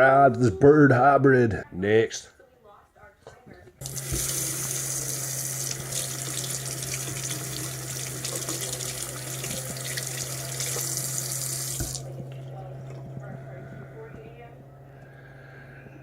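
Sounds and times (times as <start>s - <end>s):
steady low hum: 3.3s - 16.0s
tap water running into sink: 3.8s - 13.3s.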